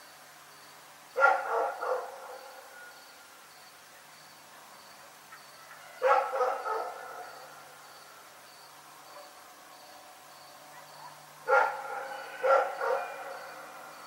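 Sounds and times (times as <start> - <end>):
crickets chirping: 0.0 - 14.0
dog barking: 1.2 - 2.5, 6.0 - 7.5, 10.7 - 13.3.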